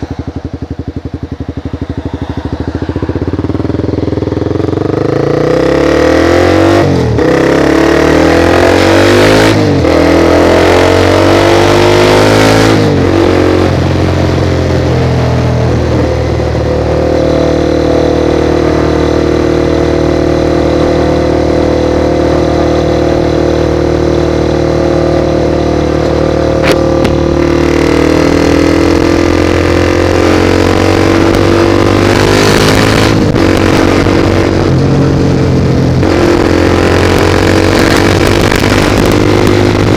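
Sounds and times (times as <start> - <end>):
broad rush of noise: 0.0 - 31.8
motorcycle engine accelerating: 0.0 - 39.9.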